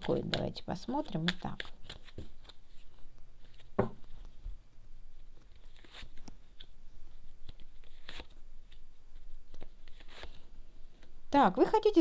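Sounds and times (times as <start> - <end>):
cards clicking and tapping: 0.0 - 2.6.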